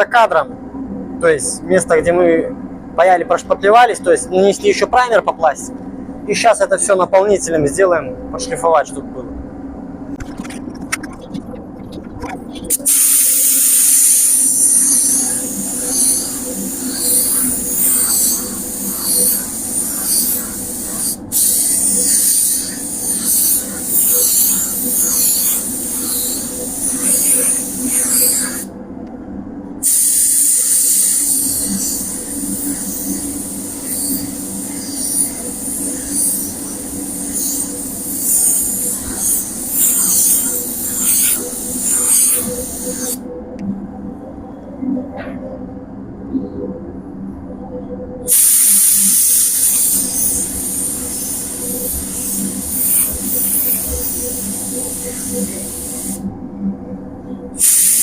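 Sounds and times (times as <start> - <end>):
steady low hum: 0.0 - 58.0
paint spray gun hissing: 12.7 - 28.7, 29.8 - 43.2, 48.3 - 56.2, 57.6 - 58.0.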